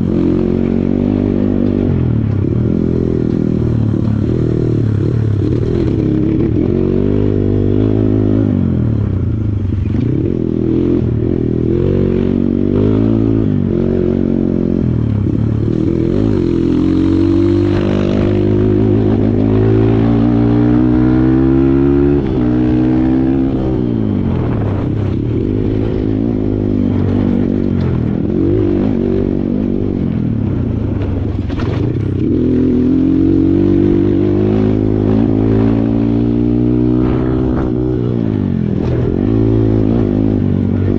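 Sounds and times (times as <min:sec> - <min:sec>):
dirt bike engine revving: 0:00.0 - 0:09.1, 0:09.8 - 0:40.9.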